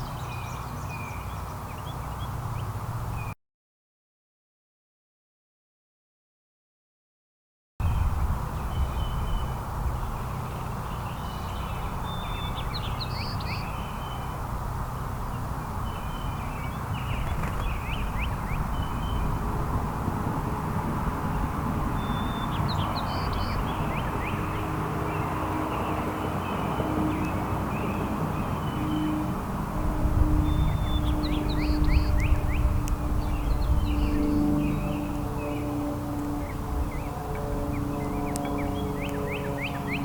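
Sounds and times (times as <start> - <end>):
small songbirds chirping: 0.0 - 3.4, 7.9 - 19.8, 21.0 - 29.3, 30.2 - 40.0.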